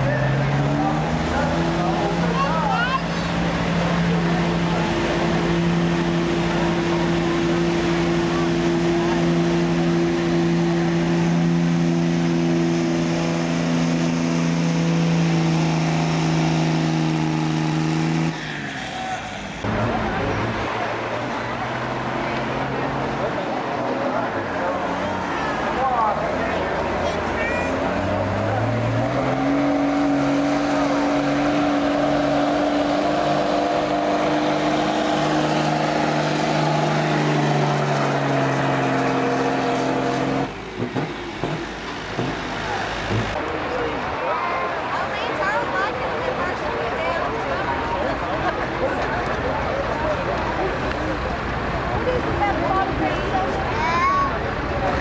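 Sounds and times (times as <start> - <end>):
diesel truck engine at high revs: 0.0 - 55.0.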